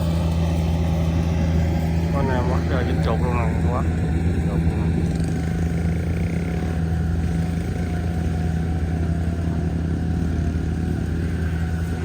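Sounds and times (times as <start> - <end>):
heavy engine droning: 0.0 - 12.0.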